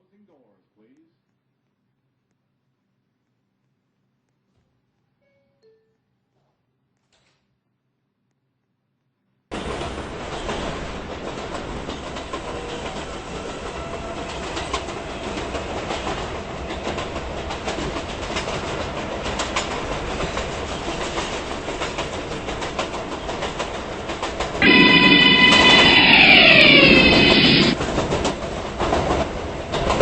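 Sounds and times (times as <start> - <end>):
subway train rumbling on track: 9.5 - 30.0.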